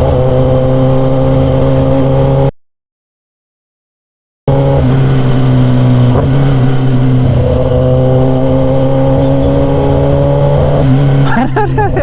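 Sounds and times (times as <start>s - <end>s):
motorcycle engine running loudly: 4.5s - 11.6s.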